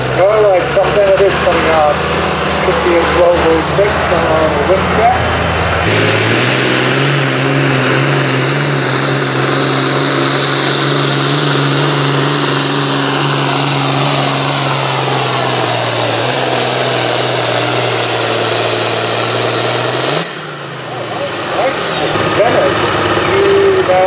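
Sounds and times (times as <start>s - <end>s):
tractor diesel engine at full throttle: 0.0s - 24.0s
high whine: 0.3s - 19.2s.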